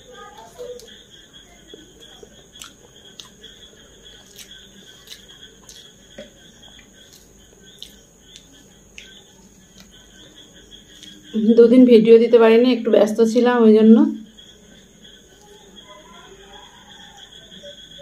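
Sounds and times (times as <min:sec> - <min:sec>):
quiet chewing: 0:00.2 - 0:11.4, 0:14.7 - 0:17.8
fingers mixing rice on plate: 0:02.0 - 0:11.2.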